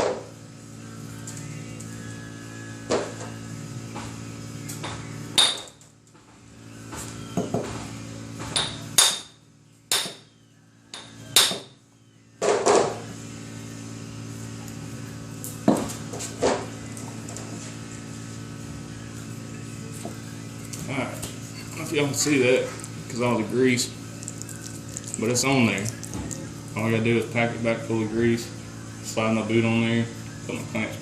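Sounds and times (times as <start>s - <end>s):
hammer striking metal: 8.5s - 10.2s, 10.9s - 11.7s.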